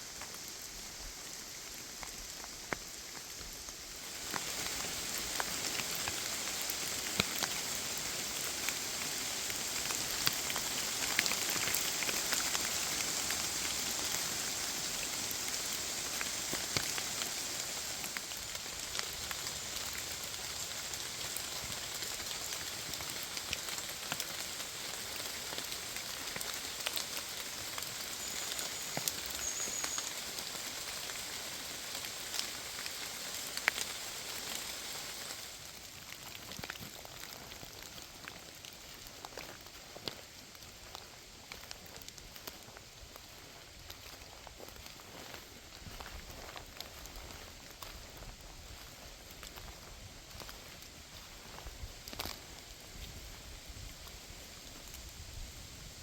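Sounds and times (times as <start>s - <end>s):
steady hiss of rain: 0.0s - 56.0s
raindrops ticking: 0.1s - 53.1s.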